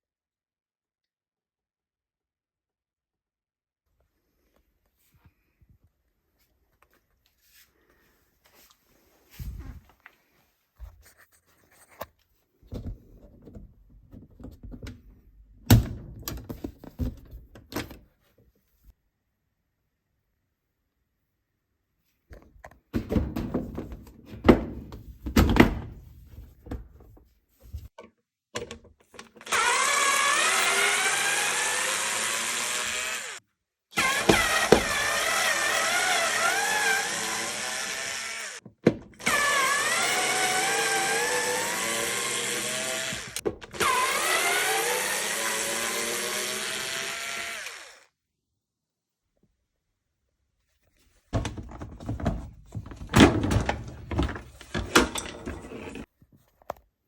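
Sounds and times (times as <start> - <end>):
cordless drill whining: 29.4 - 38.6, 39.2 - 48.1.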